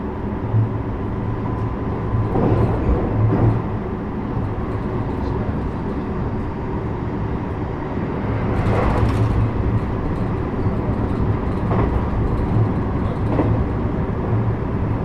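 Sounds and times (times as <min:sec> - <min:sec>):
train wheels rumbling on track: 0:00.0 - 0:15.0
short train clatters: 0:01.5 - 0:06.6, 0:07.5 - 0:15.0.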